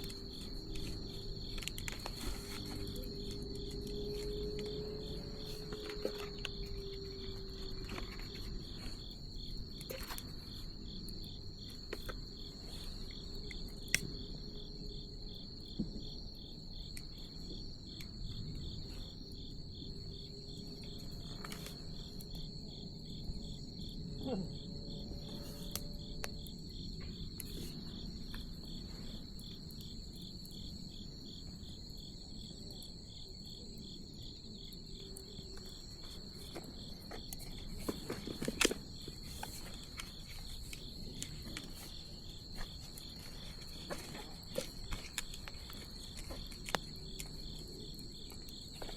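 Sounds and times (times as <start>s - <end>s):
bonfire hissing and popping: 0.0s - 14.6s, 25.2s - 33.7s, 34.8s - 48.9s
insects chirping: 0.0s - 48.9s.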